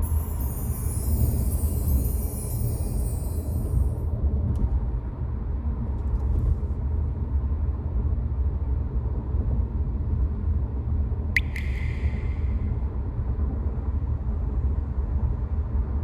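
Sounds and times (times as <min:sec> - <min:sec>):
short sharp sound: 0:11.4 - 0:12.8.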